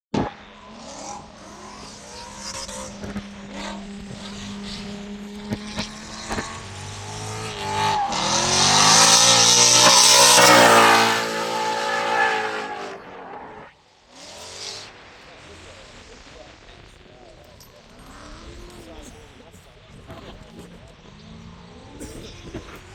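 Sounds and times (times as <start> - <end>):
car engine accelerating: 0.2 - 22.9
tyres screeching: 1.0 - 13.7.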